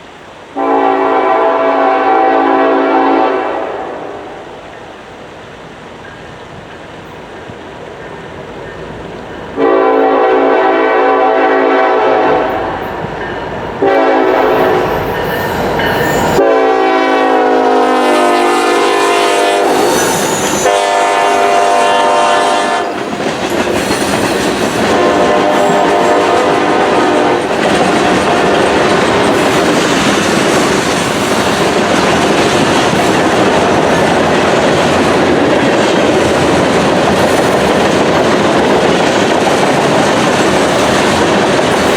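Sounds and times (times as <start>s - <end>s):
train cars rumbling on rails: 0.0s - 41.9s
locomotive horn blasts: 0.6s - 4.4s, 9.6s - 12.6s, 13.8s - 15.1s, 16.3s - 23.0s, 24.8s - 27.5s.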